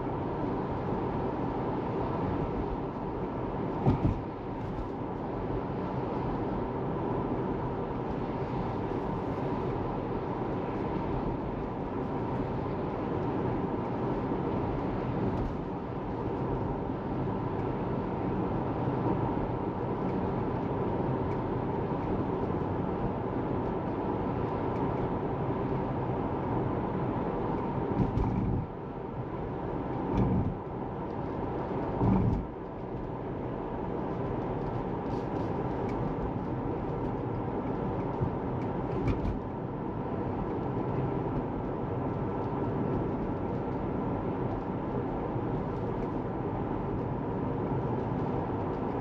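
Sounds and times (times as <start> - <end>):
tyre and road noise: 0.0 - 49.0
short thump: 3.8 - 4.2.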